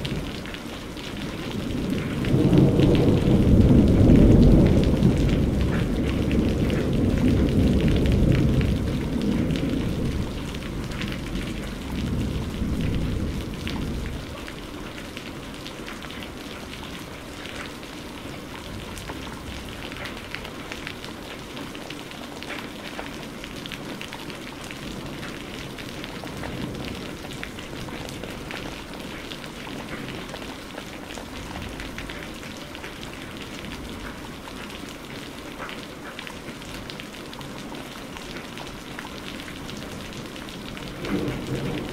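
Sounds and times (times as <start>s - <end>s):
thunder rumbling: 0.0s - 15.5s, 39.6s - 41.9s
heavy rain: 0.0s - 41.9s.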